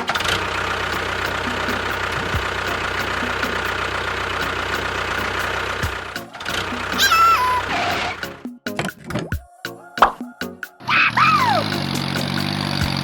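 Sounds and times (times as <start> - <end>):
fast regular ticking: 0.0 - 7.1, 11.6 - 13.0
engine-like mechanical running: 0.0 - 8.2, 11.3 - 13.0.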